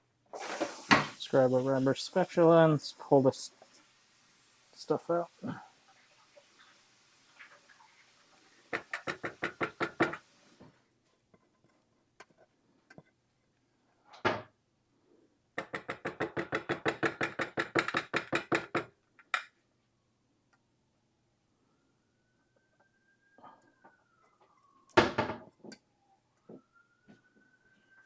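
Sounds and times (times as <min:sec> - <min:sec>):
spatula knocking on pan: 0:08.7 - 0:10.2.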